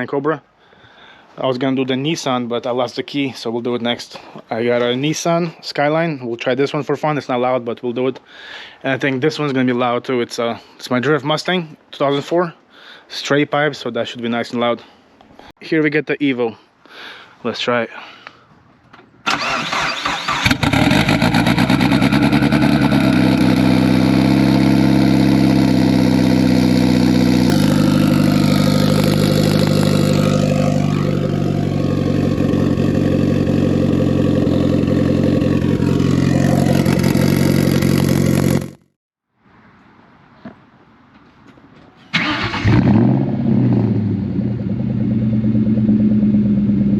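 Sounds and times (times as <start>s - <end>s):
car engine fast idle: 19.3s - 35.2s.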